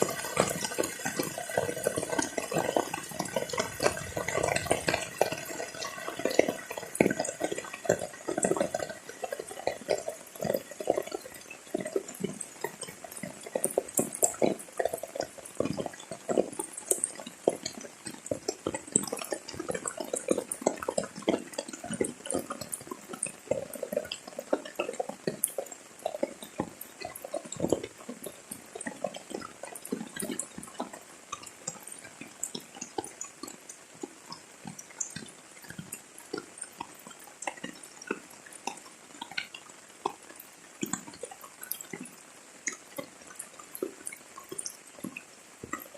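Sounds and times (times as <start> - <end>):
heavy rain falling: 0.0 - 8.5.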